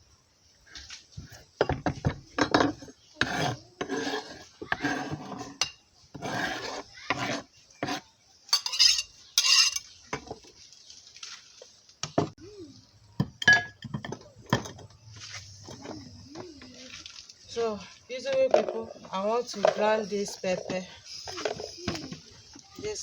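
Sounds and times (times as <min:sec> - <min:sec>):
metal utensils scraping: 0:02.4 - 0:10.4, 0:18.5 - 0:22.2
metal pots clinking: 0:08.5 - 0:10.3, 0:13.2 - 0:15.0.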